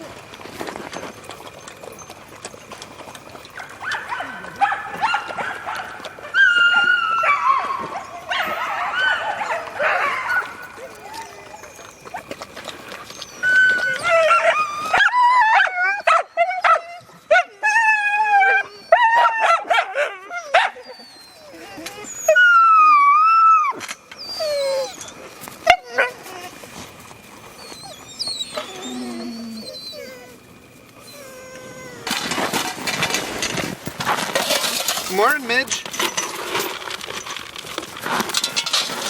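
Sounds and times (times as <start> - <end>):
dogs howling yipping and whining: 0.0 - 39.0
long dog howl: 3.6 - 12.4, 13.0 - 26.6, 27.6 - 30.4, 31.0 - 32.3.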